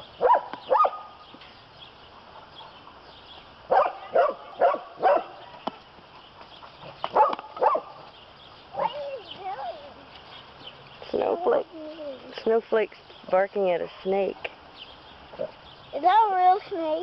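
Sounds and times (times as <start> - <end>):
dog barking: 0.2 - 1.2, 3.7 - 5.4, 7.1 - 8.0.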